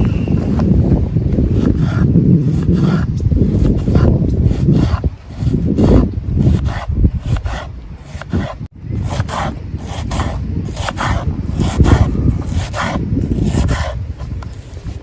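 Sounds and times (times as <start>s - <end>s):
rubbing and scraping strokes: 0.0s - 15.0s
steady low rumble: 0.0s - 15.0s.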